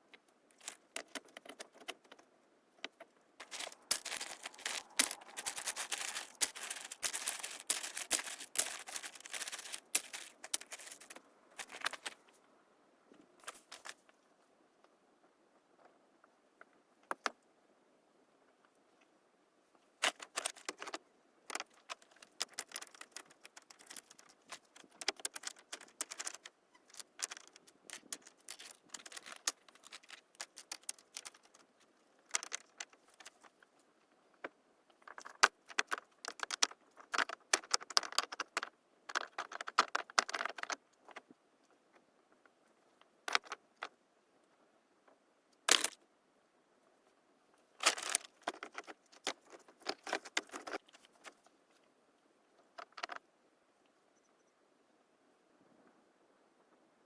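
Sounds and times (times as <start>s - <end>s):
small hard objects clicking: 0.5s - 2.2s, 2.8s - 12.2s, 20.0s - 33.6s, 35.0s - 41.2s, 43.3s - 43.9s, 45.7s - 46.0s, 47.8s - 51.4s.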